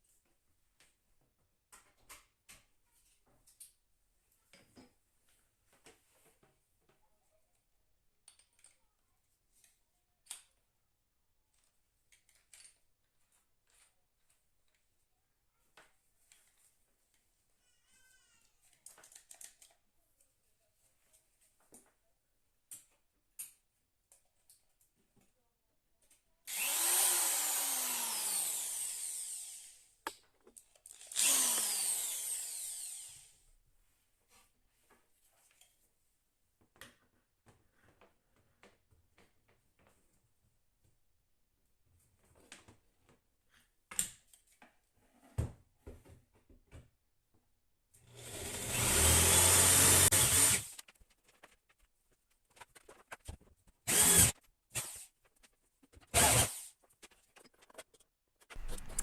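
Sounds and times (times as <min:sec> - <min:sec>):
power drill drilling wood: 0:26.5 - 0:29.8, 0:31.0 - 0:33.4, 0:48.1 - 0:50.8, 0:53.9 - 0:55.0, 0:56.1 - 0:56.7, 0:58.6 - 0:59.0
handling clicks and rustles: 0:57.0 - 0:59.0
sharp click: 0:58.5 - 0:59.0.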